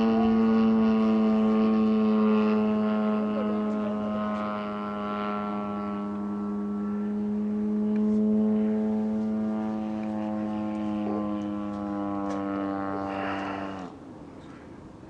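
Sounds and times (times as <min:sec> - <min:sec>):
model airplane engine and propeller: 0:00.0 - 0:15.0.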